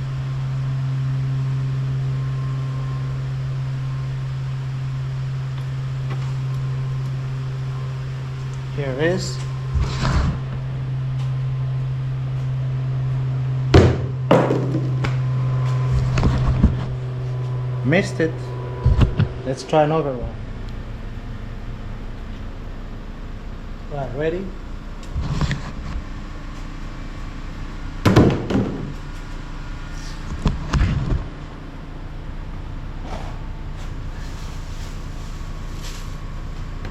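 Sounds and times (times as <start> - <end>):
steady low hum: 0.0 - 36.9
thud with short rattle: 13.8 - 15.1, 28.0 - 28.9
tossed object thunking and bouncing: 13.8 - 15.1.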